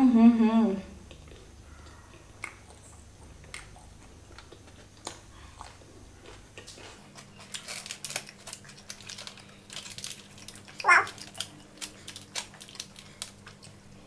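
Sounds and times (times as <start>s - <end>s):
person chewing food: 1.1s - 14.0s.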